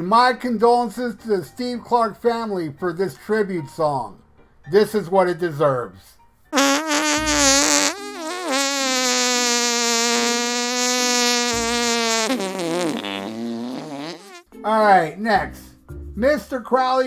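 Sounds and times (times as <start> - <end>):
buzzy mocking raspberry noise: 6.6 - 14.4.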